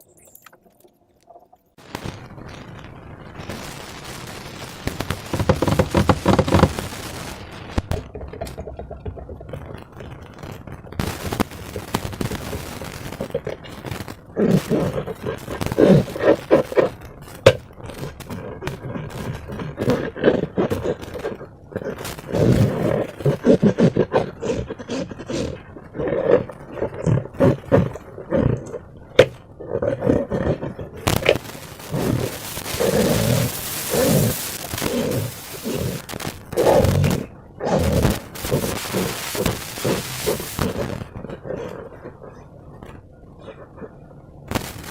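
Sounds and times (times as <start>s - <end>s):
steady hiss: 1.8s - 23.8s, 31.0s - 41.5s, 44.4s - 44.9s
slime crackling and popping: 1.8s - 29.5s, 31.0s - 42.1s, 44.5s - 44.9s.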